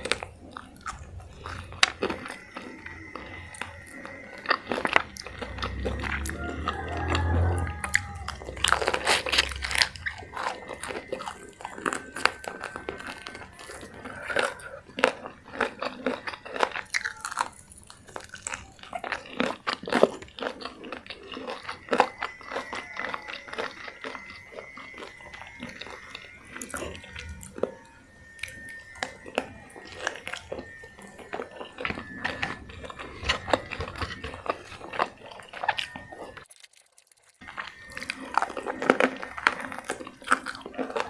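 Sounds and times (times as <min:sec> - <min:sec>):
crunchy chewing of crisp food: 0:00.0 - 0:41.0
low rumble: 0:02.9 - 0:13.4.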